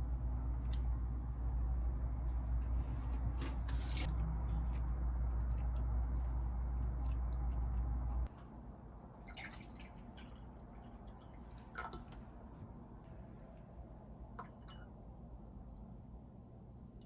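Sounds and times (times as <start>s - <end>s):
low hum: 0.0s - 9.3s.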